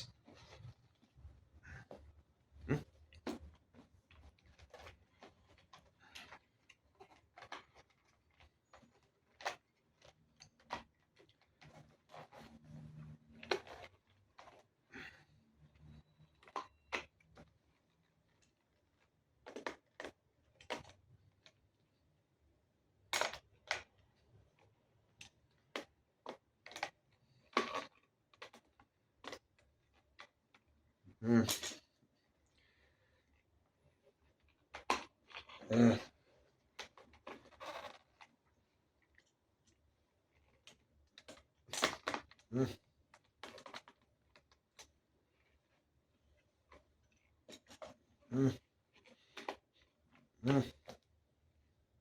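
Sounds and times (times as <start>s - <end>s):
plastic parts clicking together: 39.2s - 42.5s, 43.1s - 45.0s.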